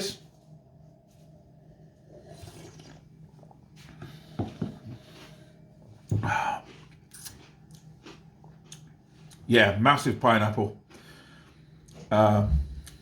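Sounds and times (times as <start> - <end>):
person slurping beer: 2.0 - 3.6
swallowing: 2.1 - 3.6.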